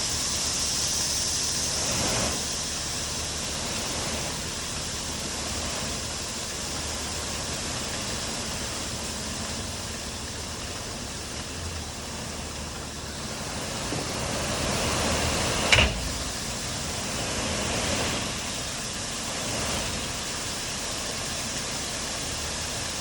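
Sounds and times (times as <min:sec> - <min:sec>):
material pouring from truck: 0:00.0 - 0:23.0
low rumble: 0:09.5 - 0:20.4
sharp bang: 0:14.0 - 0:18.7.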